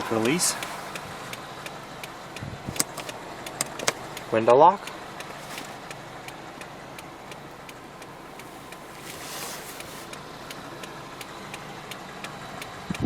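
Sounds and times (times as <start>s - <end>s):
car engine idling: 0.0s - 13.0s
quick even ticking: 0.5s - 9.2s.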